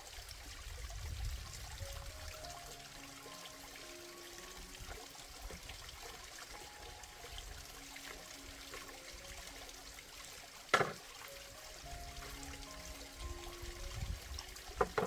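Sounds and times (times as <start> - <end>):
water trickling: 0.0 - 15.0
soft background music: 0.1 - 15.0.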